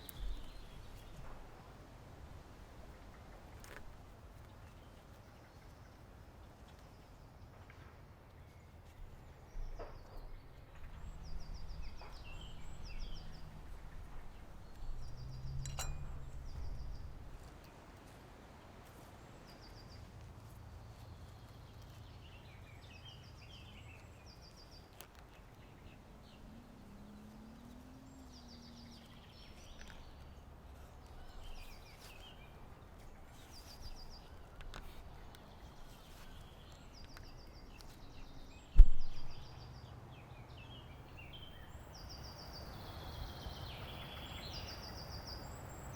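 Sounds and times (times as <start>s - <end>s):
songbirds chirping and trilling: 0.0s - 45.9s
sharp click: 15.5s - 16.6s.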